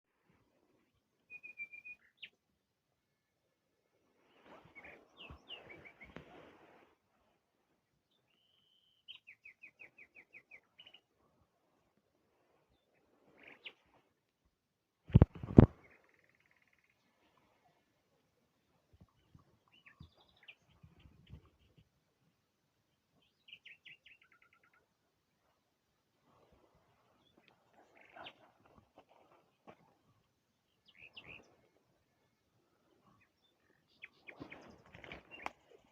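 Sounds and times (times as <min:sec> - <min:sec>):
faint birdsong: 0:00.2 - 0:14.2, 0:15.4 - 0:35.9
small birds chirping: 0:04.3 - 0:06.2, 0:18.6 - 0:21.9, 0:23.1 - 0:24.9, 0:30.6 - 0:35.9.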